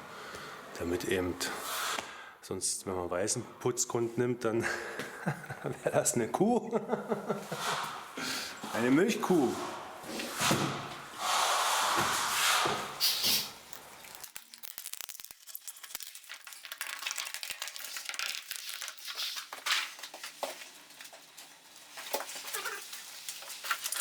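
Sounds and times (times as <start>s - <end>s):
plastic film crinkling: 13.4s - 24.0s.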